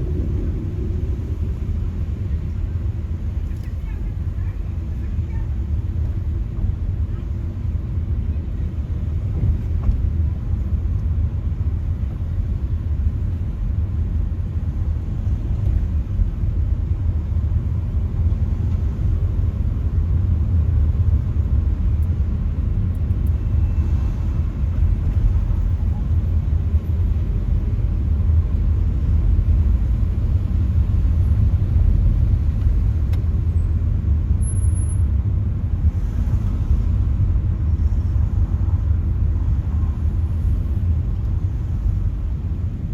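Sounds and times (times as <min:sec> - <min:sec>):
vehicle and road rumble: 0:00.0 - 0:42.9.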